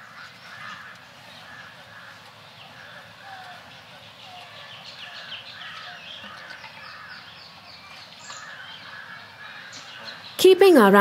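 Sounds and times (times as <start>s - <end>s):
birds chirping and calling: 0.0s - 11.0s
outdoor background hum: 0.0s - 11.0s.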